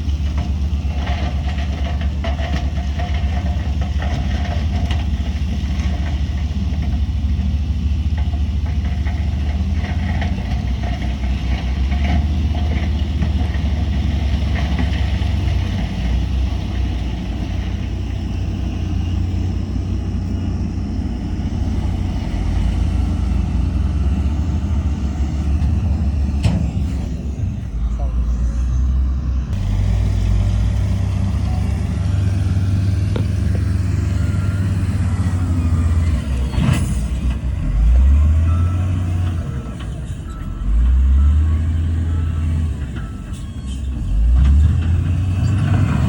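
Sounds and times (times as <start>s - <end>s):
diesel engine rumbling: 0.0s - 46.0s
light clatter: 0.1s - 7.1s.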